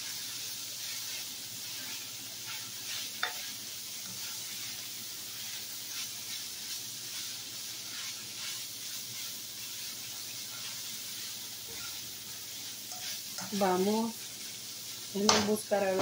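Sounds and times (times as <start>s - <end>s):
meat sizzling in a skillet: 0.0s - 16.0s
spatula scraping: 1.7s - 4.7s, 5.4s - 14.5s.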